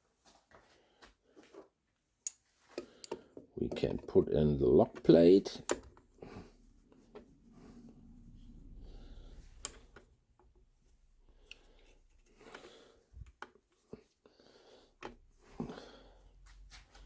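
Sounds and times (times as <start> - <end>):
low steady hum: 5.4 - 13.3.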